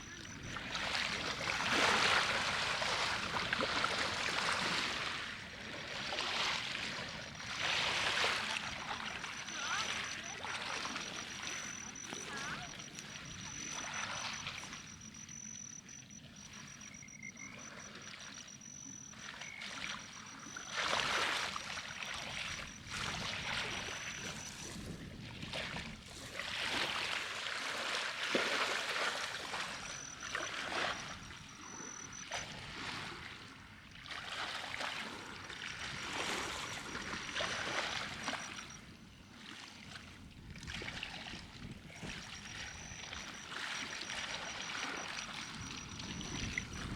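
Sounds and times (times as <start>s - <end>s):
water rushing and splashing: 0.0s - 38.8s, 40.3s - 46.9s
thin high whine: 7.2s - 24.8s, 29.5s - 32.6s, 42.0s - 46.9s.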